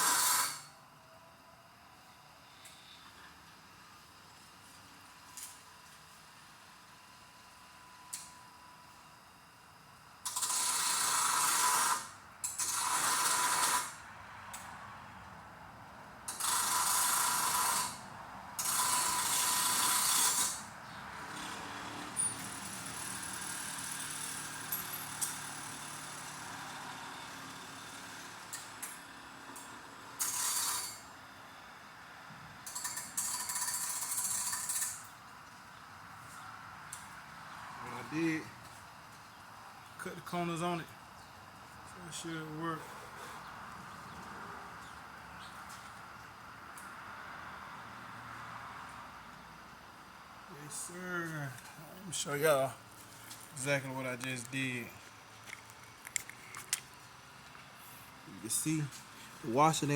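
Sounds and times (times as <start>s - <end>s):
harsh rasping cutting of metal: 0.0s - 0.7s, 10.3s - 14.0s, 16.3s - 18.0s, 18.6s - 20.7s, 30.2s - 31.1s, 32.7s - 35.1s
tool running steadily: 0.0s - 1.0s, 4.9s - 14.0s, 16.3s - 35.9s, 49.7s - 59.9s.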